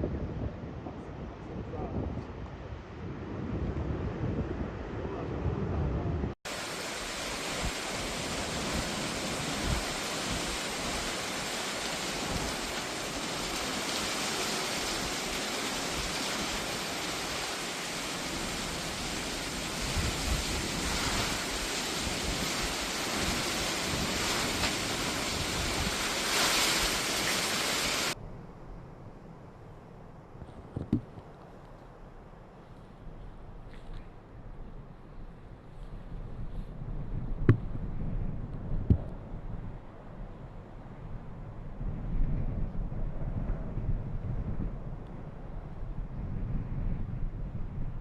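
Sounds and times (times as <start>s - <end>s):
strong wind and water rushing: 0.0s - 28.2s.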